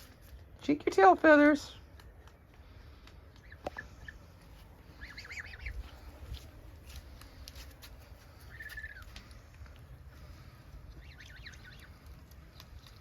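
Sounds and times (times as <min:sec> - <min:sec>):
young goose calling: 0:03.3 - 0:06.3, 0:08.3 - 0:09.4, 0:10.2 - 0:12.2.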